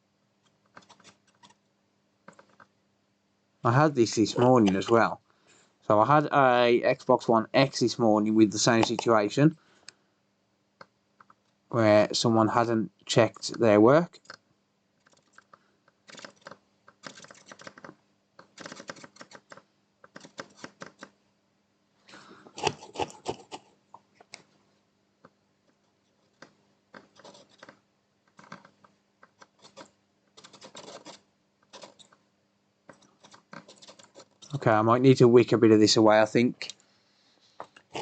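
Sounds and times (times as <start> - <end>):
faint steady hum: 0.0 - 38.0
soldering tools scratching and clicking: 22.5 - 23.6, 26.3 - 32.2, 32.9 - 34.6.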